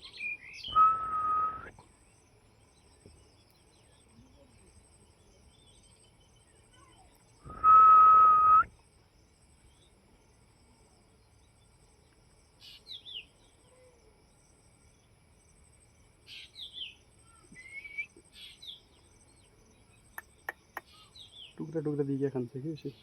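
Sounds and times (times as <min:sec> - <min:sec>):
faint bird chirps: 0:00.0 - 0:23.0
loud steady whistle: 0:00.6 - 0:01.8, 0:07.5 - 0:08.7, 0:17.6 - 0:18.1.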